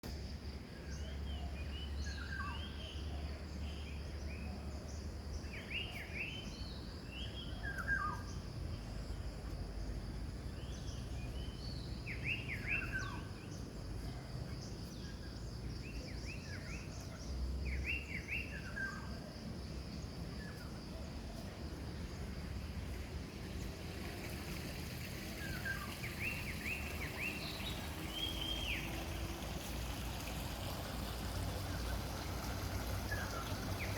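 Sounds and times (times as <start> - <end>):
birds chirping: 20.0 - 33.9.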